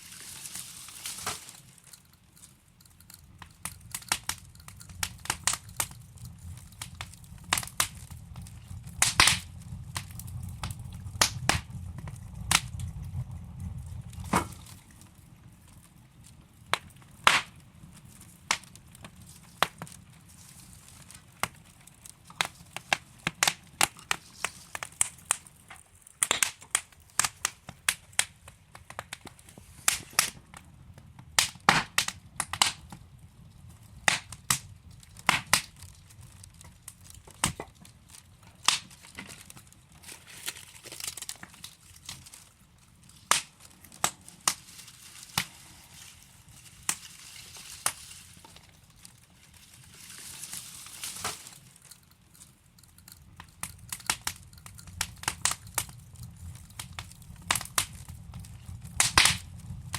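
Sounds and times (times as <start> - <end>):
wood fire crackling: 0.0 - 59.9
low rumble: 4.4 - 15.8.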